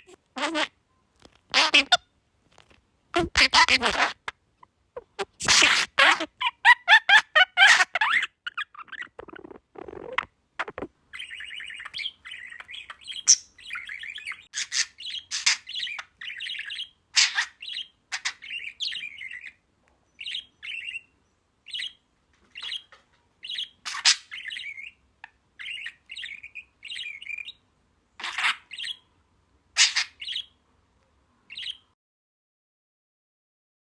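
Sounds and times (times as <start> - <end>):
small bird chirping and twittering: 5.0 - 29.1, 29.8 - 30.6, 31.5 - 31.9.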